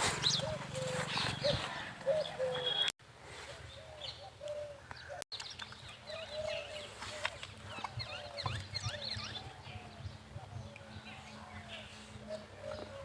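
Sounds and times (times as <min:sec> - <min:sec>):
small birds chirping: 0:00.1 - 0:02.9, 0:03.6 - 0:13.0
short lower bird calls: 0:00.2 - 0:02.9.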